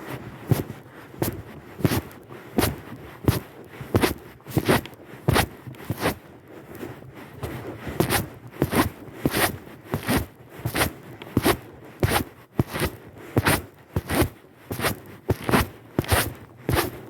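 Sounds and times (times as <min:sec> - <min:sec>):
footsteps on gravel: 0:14.0 - 0:17.0.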